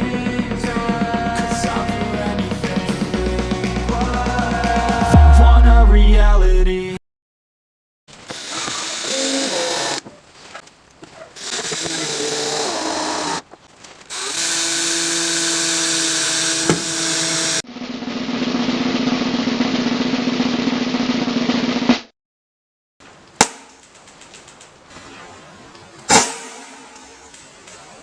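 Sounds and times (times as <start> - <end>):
power tool motor buzzing: 8.2 - 10.0, 11.4 - 13.4, 14.1 - 17.6.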